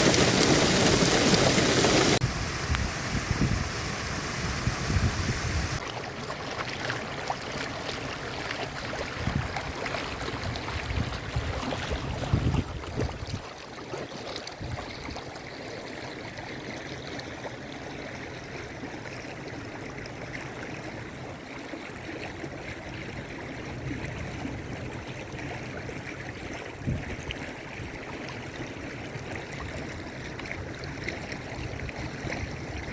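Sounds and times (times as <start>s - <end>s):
rainwater rushing: 0.0s - 5.8s
wind buffeting microphone: 0.0s - 5.8s, 9.1s - 9.7s, 10.3s - 13.4s, 26.7s - 27.3s.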